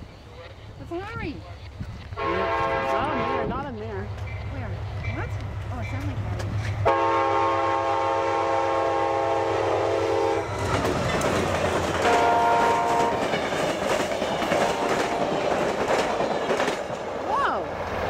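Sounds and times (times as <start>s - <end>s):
train rushing past: 0.0s - 18.0s
train horn: 2.2s - 3.6s, 6.8s - 10.5s, 12.0s - 13.4s, 14.4s - 16.2s.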